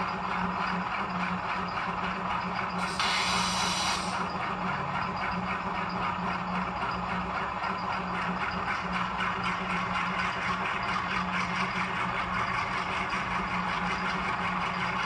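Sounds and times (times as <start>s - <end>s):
model diesel engine sound running: 0.0s - 15.0s
air compressor chugging: 1.8s - 6.9s
air hiss burst: 2.8s - 4.3s.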